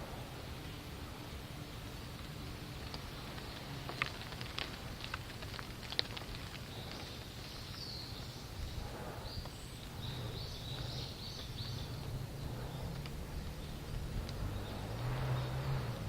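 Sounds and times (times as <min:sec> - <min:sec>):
low outdoor rumble: 0:00.0 - 0:16.0
small bird chirping: 0:06.6 - 0:15.9.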